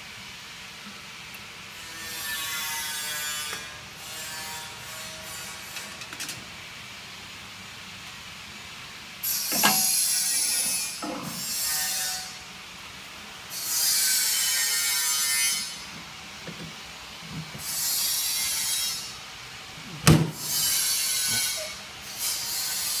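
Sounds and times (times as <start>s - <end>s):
machine clunks: 9.5s - 9.9s.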